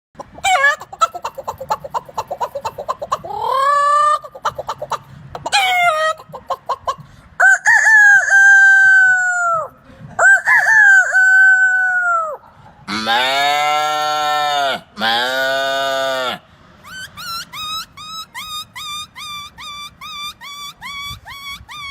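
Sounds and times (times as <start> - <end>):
person imitating chicken clucking: 0.2 - 21.9
person imitating rooster crows: 7.4 - 16.4.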